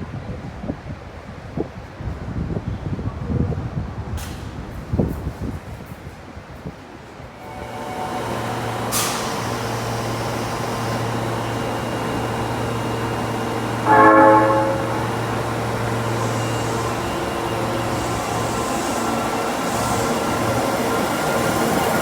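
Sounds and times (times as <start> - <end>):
subway train rumbling: 0.0 - 22.0
train horn blast: 7.4 - 10.8, 11.4 - 19.4.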